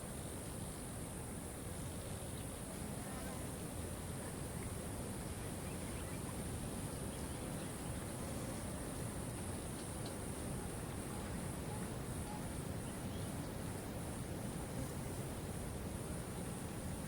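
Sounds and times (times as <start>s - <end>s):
faint bird chirps: 5.4s - 8.7s.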